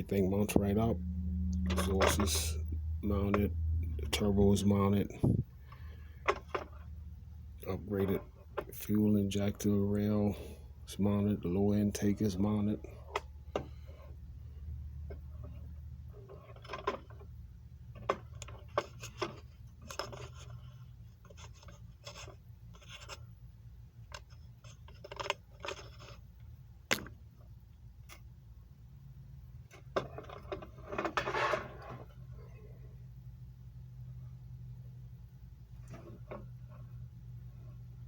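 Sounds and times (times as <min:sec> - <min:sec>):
low hum: 0:00.0 - 0:18.0
rubbing and scraping: 0:30.0 - 0:32.2.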